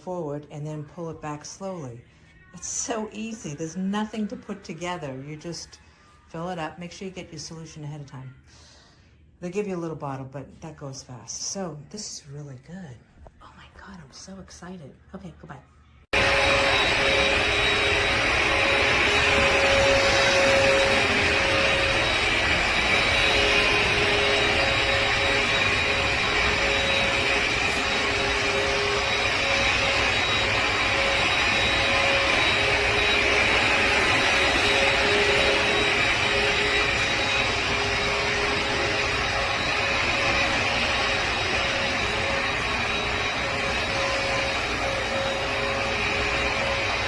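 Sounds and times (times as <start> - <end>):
vacuum cleaner motor whining: 16.1 - 47.0.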